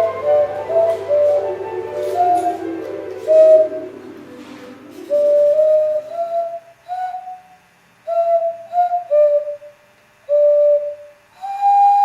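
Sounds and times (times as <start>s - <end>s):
clay whistle notes: 0.0s - 12.0s.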